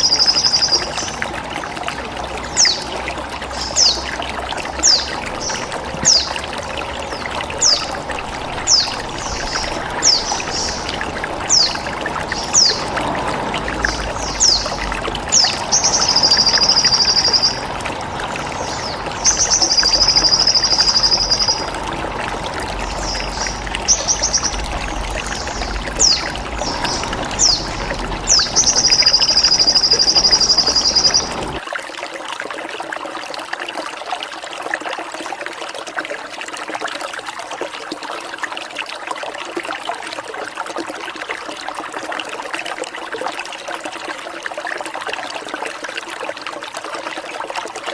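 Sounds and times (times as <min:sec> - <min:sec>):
water trickling: 0:00.0 - 0:47.9
bird chirps: 0:22.8 - 0:31.6.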